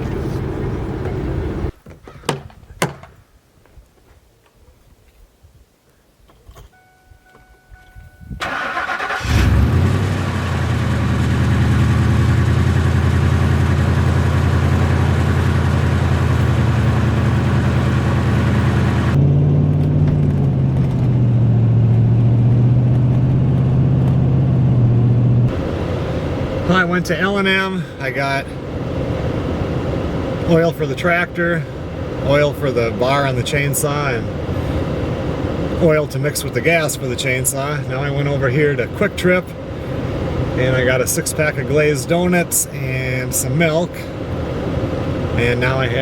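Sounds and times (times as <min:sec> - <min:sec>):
engine starter cranking: 0:08.4 - 0:09.8
truck engine idling: 0:08.4 - 0:46.0.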